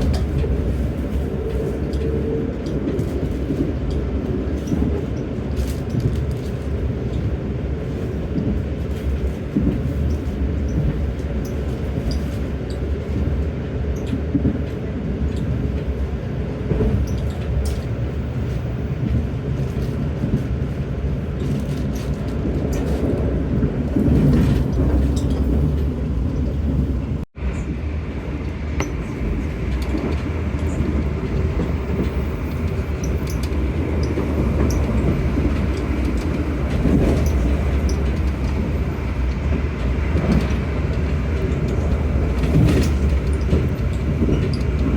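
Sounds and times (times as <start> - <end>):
train wheels rumbling on track: 0.0 - 44.9.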